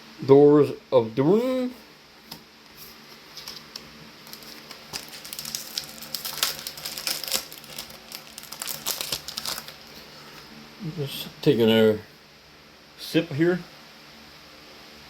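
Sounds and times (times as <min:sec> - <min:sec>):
plastic packaging crinkling: 0:03.2 - 0:10.1.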